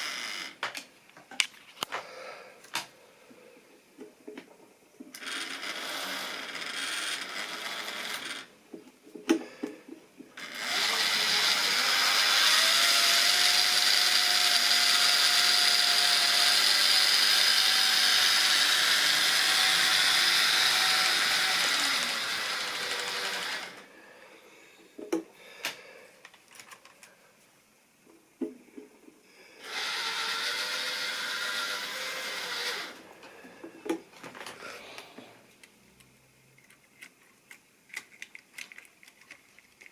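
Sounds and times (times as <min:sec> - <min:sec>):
model train motor whine: 0:05.2 - 0:08.5, 0:10.4 - 0:23.9, 0:29.6 - 0:33.0.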